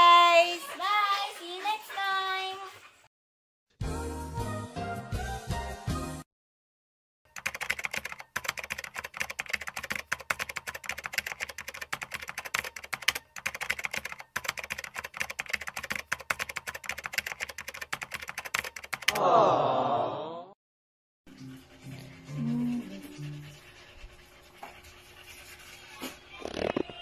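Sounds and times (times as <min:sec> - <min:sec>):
keyboard typing clicks: 0:07.3 - 0:19.2.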